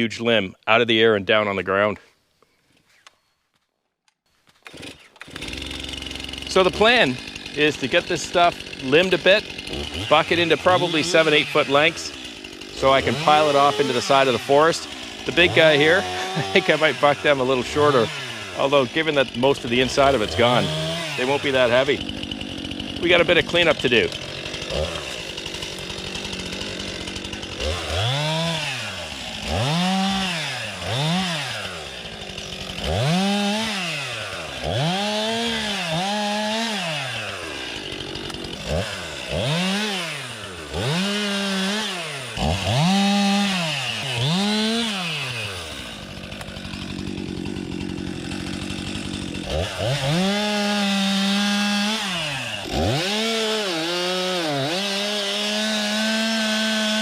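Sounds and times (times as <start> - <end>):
chainsaw revving: 4.6 - 57.0.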